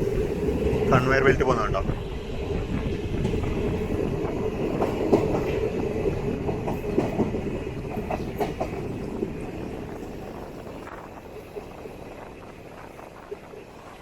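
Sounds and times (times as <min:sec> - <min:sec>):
train wheels rumbling on rails: 0:00.0 - 0:14.0
clicks and clacks over track: 0:07.9 - 0:08.8.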